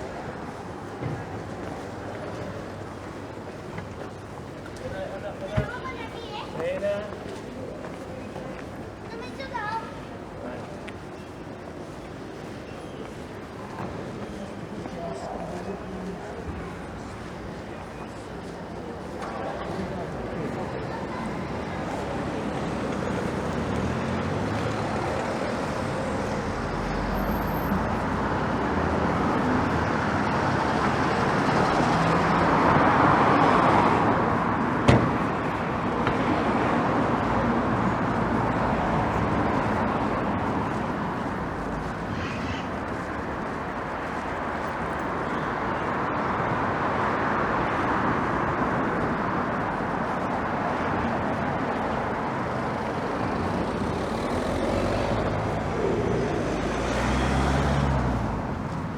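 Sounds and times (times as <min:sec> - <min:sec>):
cars passing on street: 0:00.0 - 0:58.9
sharp knock: 0:34.9 - 0:35.3.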